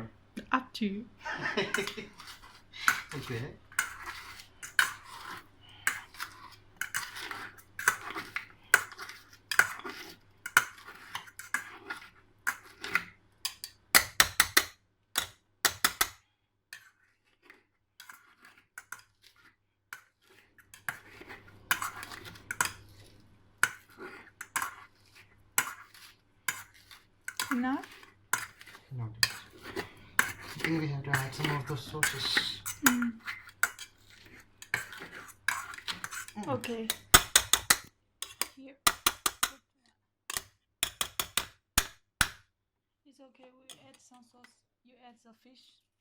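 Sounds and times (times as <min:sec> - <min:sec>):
potato masher pounding in a bowl: 0:02.9 - 0:16.2, 0:25.6 - 0:39.6, 0:40.3 - 0:42.4.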